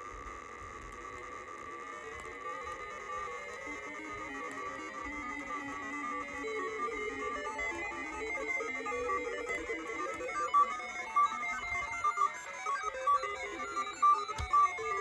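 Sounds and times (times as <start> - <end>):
sharp clicks: 0.5 - 15.0
random electronic beeping tones: 5.6 - 15.0.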